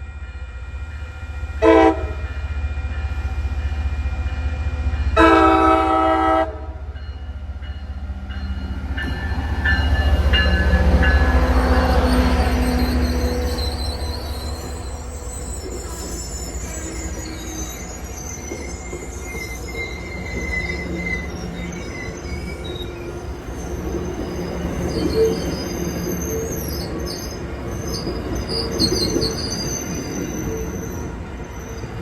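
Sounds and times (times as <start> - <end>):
train rumbling on rails: 0.0 - 32.0
high-pitched wheel squeal: 11.4 - 31.9.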